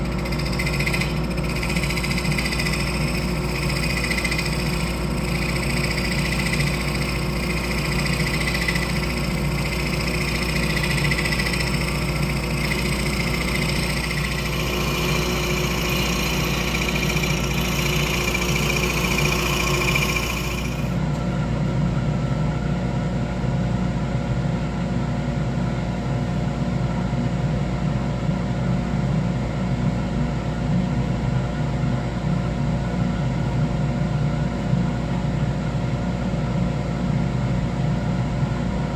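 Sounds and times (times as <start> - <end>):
lathe motor hum: 0.0 - 21.2
hiss of wood being turned: 0.1 - 21.0.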